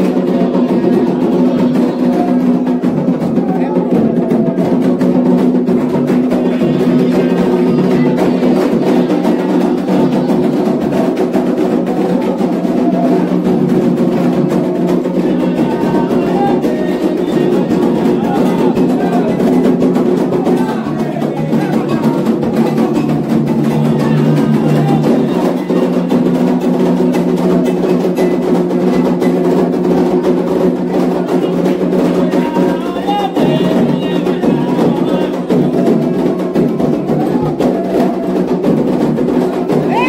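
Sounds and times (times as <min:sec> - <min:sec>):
hand drums fast rhythm: 0:00.0 - 0:40.0
voices singing: 0:00.0 - 0:40.0.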